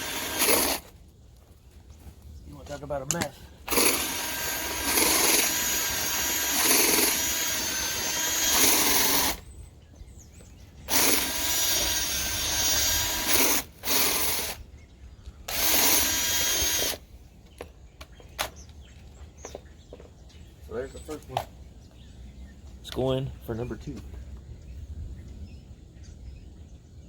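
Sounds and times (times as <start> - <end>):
cordless drill spinning brush in duct: 0.0 - 1.0, 3.6 - 9.5, 10.8 - 14.6, 15.5 - 17.0.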